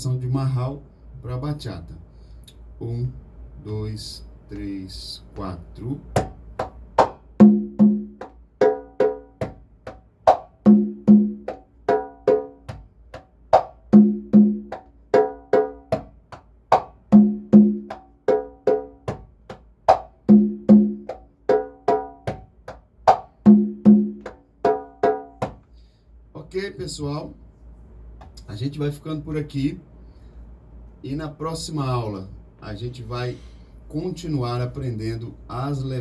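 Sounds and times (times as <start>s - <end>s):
congas played by hand: 6.1s - 25.6s.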